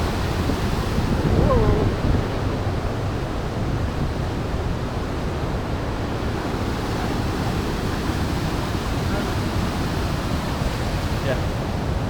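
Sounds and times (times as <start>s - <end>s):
large waterfall rushing: 5.1s - 12.0s.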